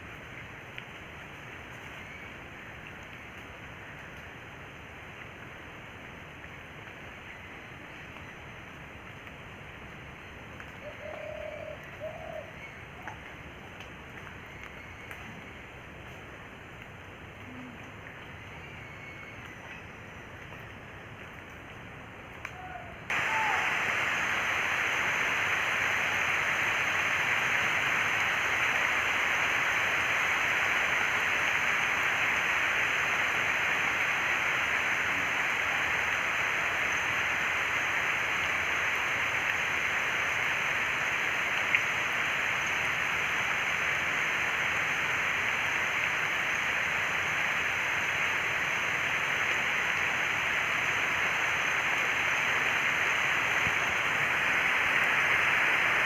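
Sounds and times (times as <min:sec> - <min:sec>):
water rushing: 0:23.1 - 0:56.0.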